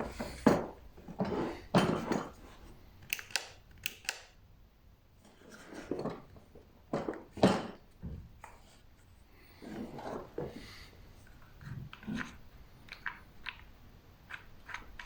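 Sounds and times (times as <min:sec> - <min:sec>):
hard objects knocking and thumping: 0:00.0 - 0:02.4, 0:05.9 - 0:08.4
sharp clicks: 0:03.0 - 0:04.4.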